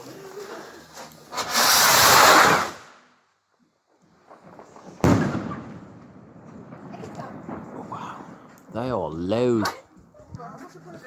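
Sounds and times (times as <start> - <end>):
firework rushing hiss: 0.0 - 3.1
firework bang with echo: 5.0 - 8.6.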